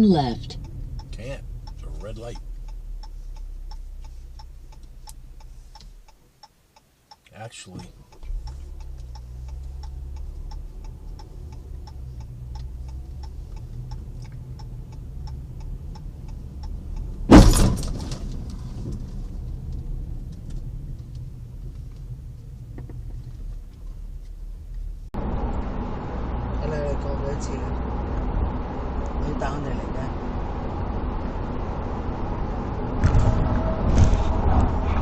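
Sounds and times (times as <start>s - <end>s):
turn signal ticking: 0.0s - 17.4s, 18.3s - 25.2s
car cabin hum: 0.0s - 27.0s
collision crash: 17.3s - 18.6s, 32.9s - 35.0s.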